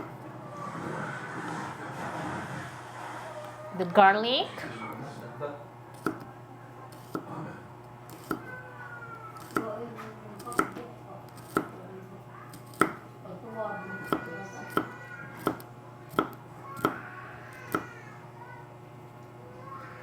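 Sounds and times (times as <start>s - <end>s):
knife chopping on cutting board: 6.0s - 6.3s, 6.9s - 7.4s, 8.1s - 8.5s, 9.4s - 9.8s, 10.4s - 11.8s, 12.5s - 13.0s, 14.0s - 17.0s.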